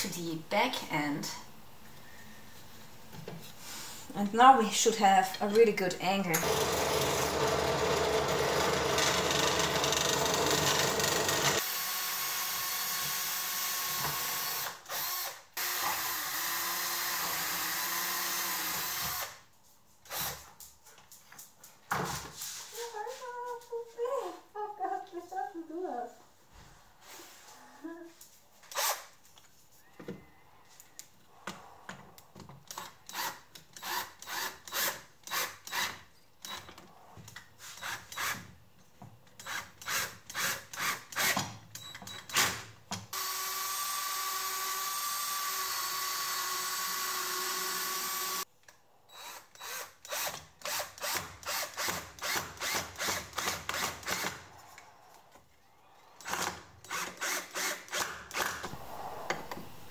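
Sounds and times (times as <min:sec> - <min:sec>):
power tool whirring: 0:06.4 - 0:19.4, 0:43.1 - 0:48.5, 0:49.1 - 0:54.4, 0:56.2 - 0:58.7.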